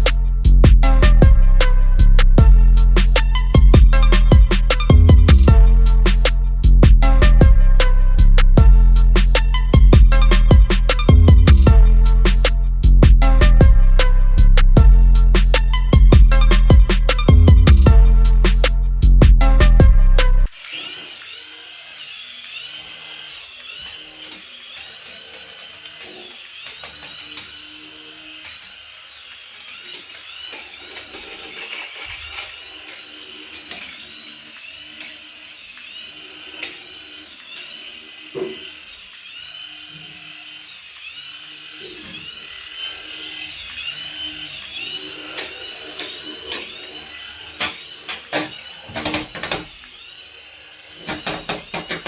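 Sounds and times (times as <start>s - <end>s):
toy electric motor whining: 0.0s - 52.0s.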